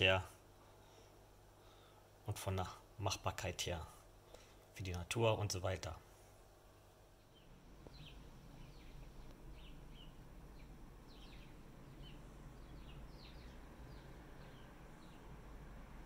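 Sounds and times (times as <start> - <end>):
faint low rumble: 4.8 - 16.0
faint bird chirps: 6.8 - 15.3.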